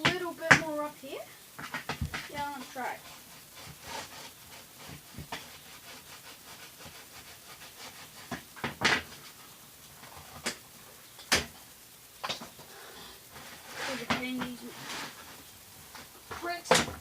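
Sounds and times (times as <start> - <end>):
plastic crackling: 0.0 - 17.0.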